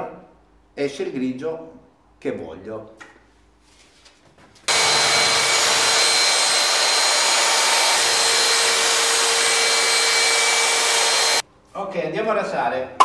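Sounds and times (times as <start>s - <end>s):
electric paddle mixer whining: 4.7s - 11.4s.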